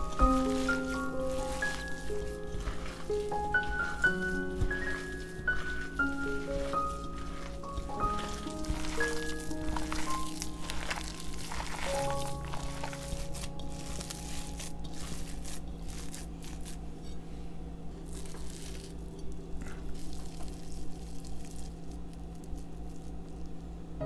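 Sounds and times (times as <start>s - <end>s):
hands squishing ground meat: 0.0s - 17.1s, 18.0s - 23.6s.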